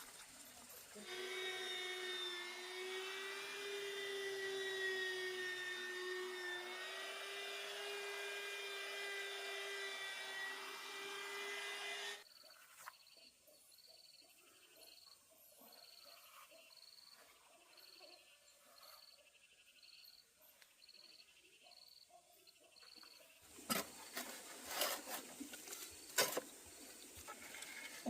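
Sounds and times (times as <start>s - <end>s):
small motor whining: 1.0s - 12.2s
faint insect chirping: 12.3s - 23.3s.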